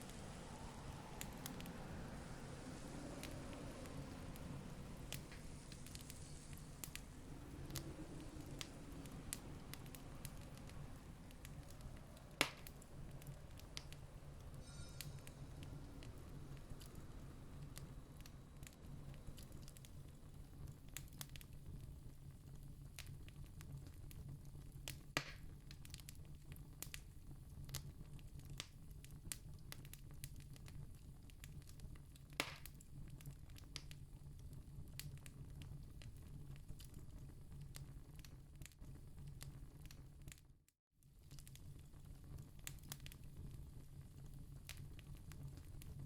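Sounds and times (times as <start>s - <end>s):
loud fire pops: 0.0s - 22.0s
low steady rumble: 0.0s - 23.0s
campfire crackling: 0.0s - 40.4s, 41.2s - 46.0s.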